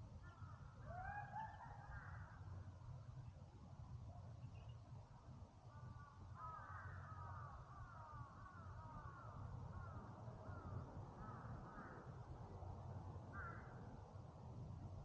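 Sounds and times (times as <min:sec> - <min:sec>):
faint crows cawing: 0:00.2 - 0:02.8, 0:05.6 - 0:14.2.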